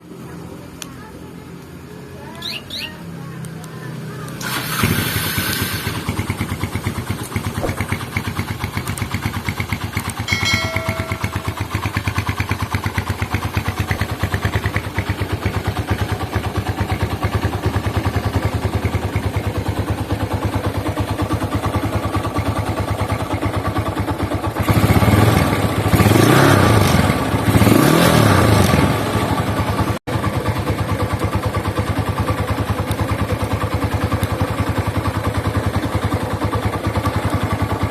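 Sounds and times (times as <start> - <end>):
motorcycle engine idling and revving: 0.0 - 37.9
motorcycle engine starting: 3.4 - 37.9.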